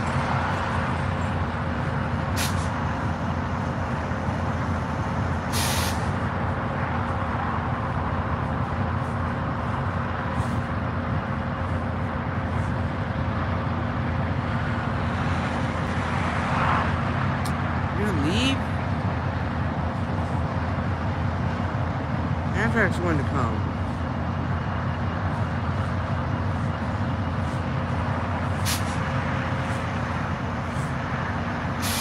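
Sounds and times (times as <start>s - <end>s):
diesel locomotive engine hum: 0.0s - 32.0s
air brake hiss: 2.4s - 2.8s, 5.5s - 6.2s, 28.6s - 29.0s, 31.8s - 32.0s.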